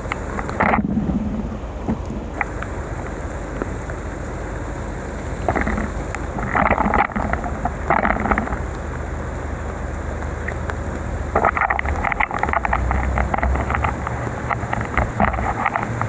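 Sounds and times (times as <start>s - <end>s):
wind noise: 0.0s - 4.0s, 5.4s - 8.8s, 11.3s - 16.0s
rain: 0.0s - 16.0s.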